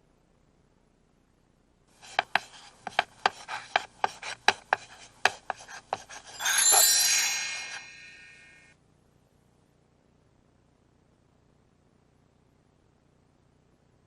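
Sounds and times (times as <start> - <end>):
bright shimmering chime: 6.3 - 8.7.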